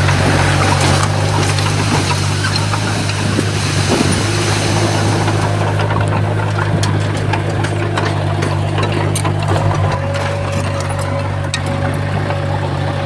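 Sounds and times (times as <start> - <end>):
diesel machinery engine running: 0.0 - 13.0
light clicks and clanks: 0.0 - 13.0.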